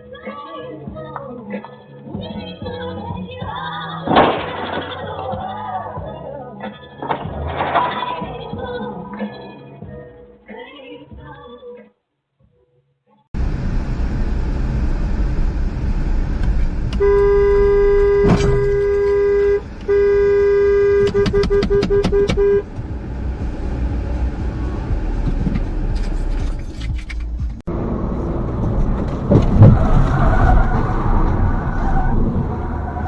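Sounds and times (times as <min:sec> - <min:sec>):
road and engine noise: 0:13.4 - 0:33.0
car horn blaring: 0:17.0 - 0:22.7.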